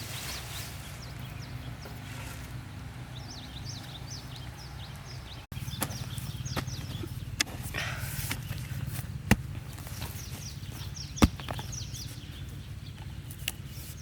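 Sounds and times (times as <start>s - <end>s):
small birds chirping: 0.0s - 14.0s
sharp knocks: 9.3s - 10.2s, 11.2s - 11.9s.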